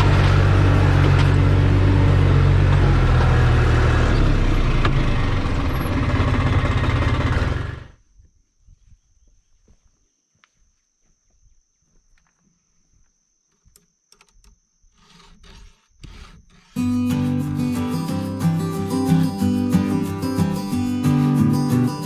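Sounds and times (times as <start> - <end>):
tractor engine running: 0.0 - 8.0, 16.8 - 22.0.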